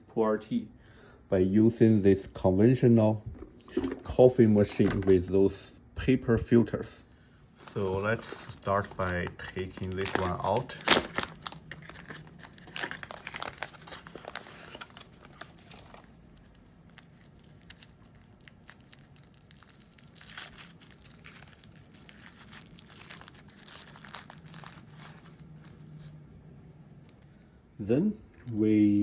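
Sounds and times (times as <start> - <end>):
wrapper crinkling and tearing: 7.7 - 26.1.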